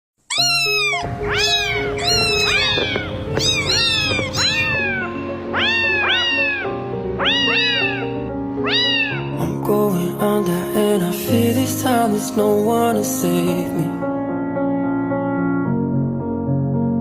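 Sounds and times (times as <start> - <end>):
kittens mewing: 0.3 - 9.5
background music: 0.3 - 17.0.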